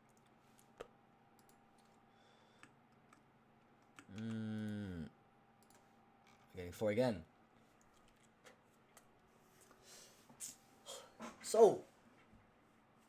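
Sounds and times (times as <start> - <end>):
person humming: 4.0 - 5.1.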